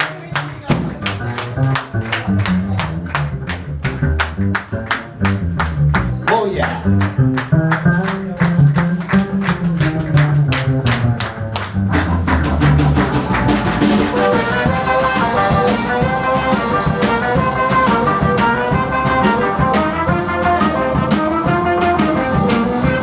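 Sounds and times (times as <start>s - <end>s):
swing band playing: 0.0s - 23.0s
walking bass: 0.0s - 23.0s
drum beat: 0.1s - 23.0s
brass chords: 11.9s - 23.0s.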